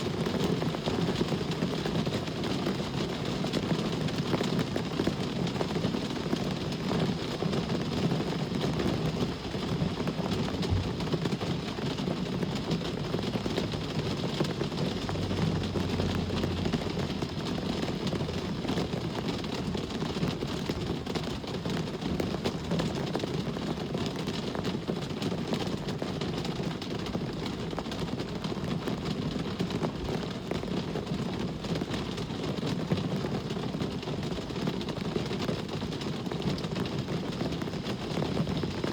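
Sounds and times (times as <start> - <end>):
rumble of road traffic: 0.0 - 25.2.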